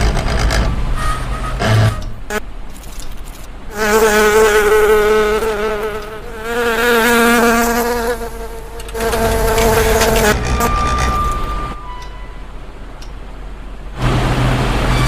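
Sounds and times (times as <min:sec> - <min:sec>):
cartoon insect buzzing: 0:02.3 - 0:10.4.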